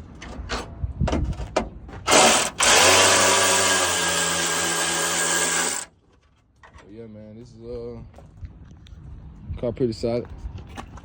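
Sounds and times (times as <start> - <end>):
electric power drill: 2.1 - 5.9.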